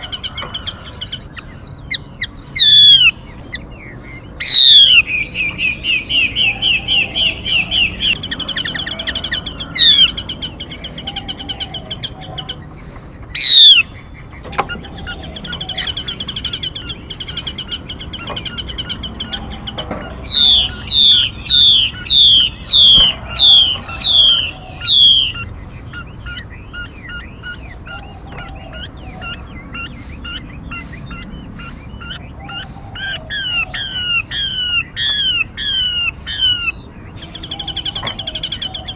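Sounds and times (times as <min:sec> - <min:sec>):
bird chatter: 0:00.0 - 0:38.9
bird chirps and calls: 0:00.0 - 0:38.9
falling whistled bird notes: 0:04.4 - 0:10.1, 0:13.4 - 0:13.8, 0:20.3 - 0:25.5.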